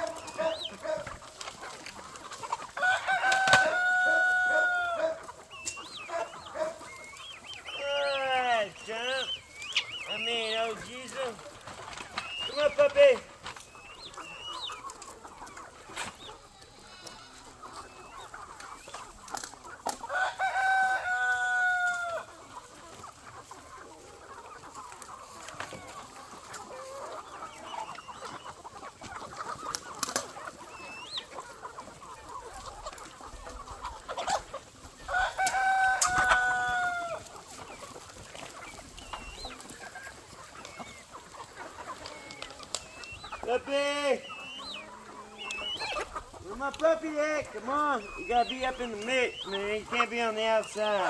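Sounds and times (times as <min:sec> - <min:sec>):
chickens clucking: 0:00.0 - 0:51.0
rooster crowing: 0:02.8 - 0:05.2, 0:20.1 - 0:22.3, 0:35.1 - 0:37.2.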